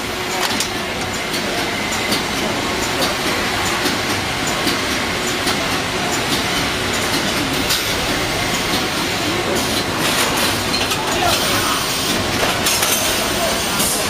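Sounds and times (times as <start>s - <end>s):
packaging machinery clattering: 0.0s - 14.0s
sharp machine clicks: 0.2s - 14.0s.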